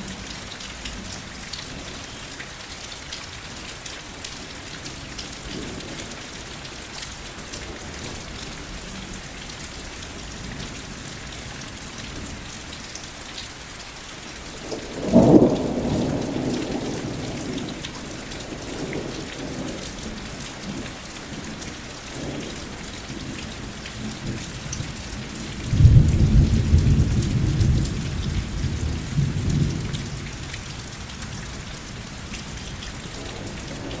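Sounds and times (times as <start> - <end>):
steady rain falling: 0.0 - 34.0
rumble of thunder: 14.6 - 21.6, 22.2 - 31.4.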